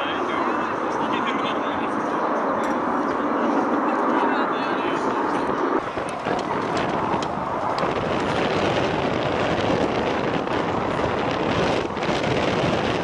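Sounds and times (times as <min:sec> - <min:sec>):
jet engine rushing: 0:00.0 - 0:13.0
wind buffeting microphone: 0:00.0 - 0:13.0.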